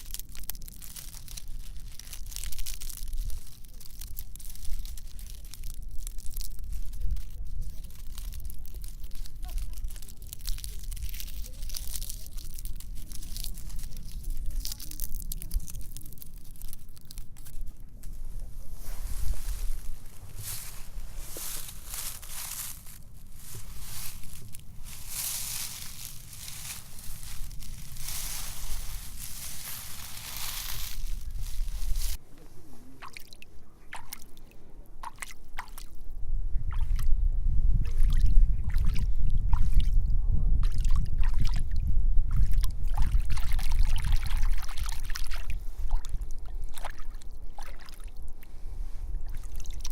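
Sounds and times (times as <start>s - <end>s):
dry leaves crunching: 0.0s - 33.2s
low rumble: 0.2s - 32.2s.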